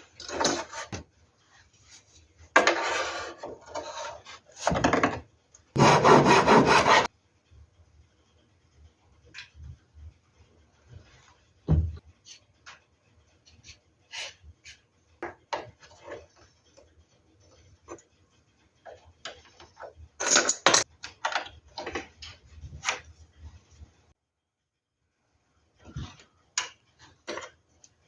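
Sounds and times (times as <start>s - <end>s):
heavy thump: 11.7s - 12.0s.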